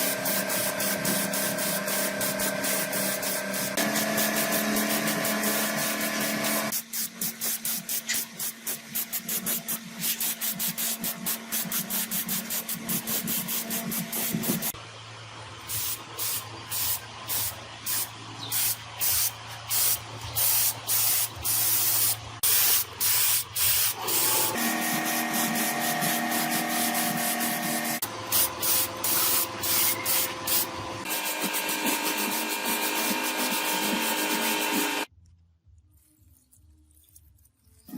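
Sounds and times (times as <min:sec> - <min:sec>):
metal being filed by hand: 0:23.7 - 0:35.1
steady hum: 0:23.9 - 0:35.1.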